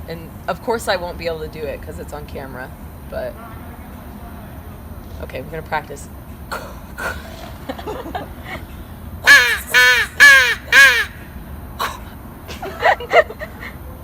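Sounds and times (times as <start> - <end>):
crow call caws: 9.3 - 12.0.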